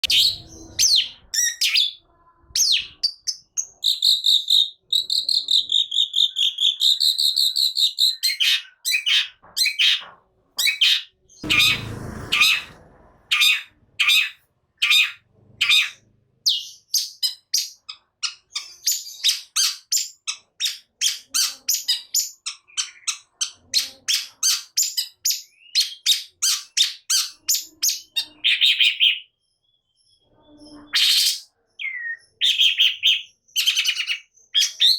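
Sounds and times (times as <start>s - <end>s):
bird singing sharp high notes: 11.4s - 15.1s.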